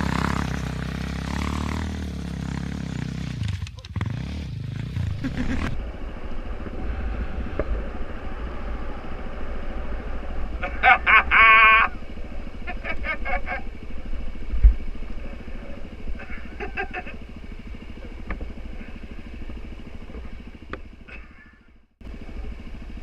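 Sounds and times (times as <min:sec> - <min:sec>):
motorcycle engine at low revs: 0:00.0 - 0:23.0.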